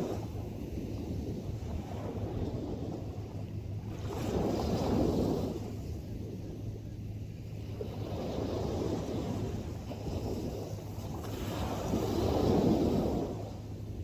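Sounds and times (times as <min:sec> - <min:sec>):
ocean surf washing in: 0:00.0 - 0:03.2, 0:07.7 - 0:14.0
wind buffeting microphone: 0:00.0 - 0:14.0.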